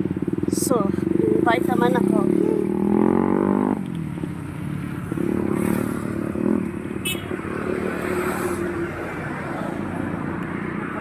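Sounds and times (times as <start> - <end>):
vehicle engine running: 0.0 - 5.1
roadside traffic: 0.0 - 11.0.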